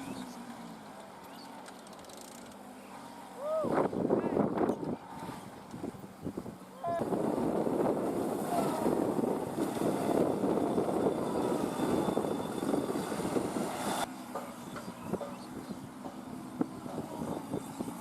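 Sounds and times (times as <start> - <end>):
tractor diesel engine running: 4.8 - 18.0.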